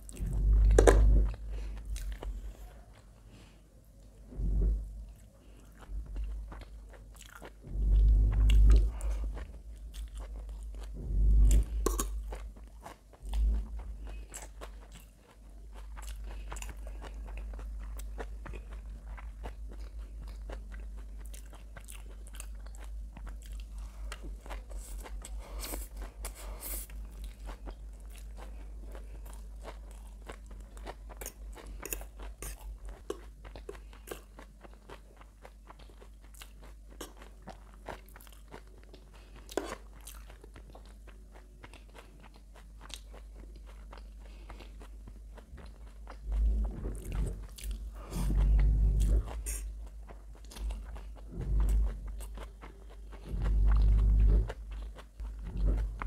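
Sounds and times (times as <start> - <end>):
heavy low thuds: 0.1 - 1.6, 4.3 - 5.0, 7.6 - 9.8, 10.8 - 11.9, 53.3 - 54.5
chewing noodles: 5.0 - 56.0.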